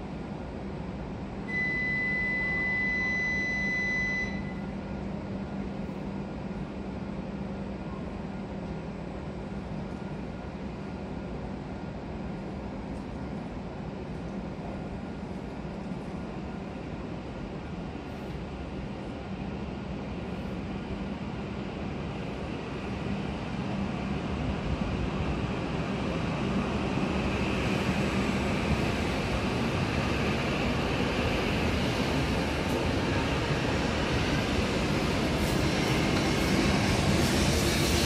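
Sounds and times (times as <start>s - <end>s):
high-pitched beep: 1.5s - 4.6s.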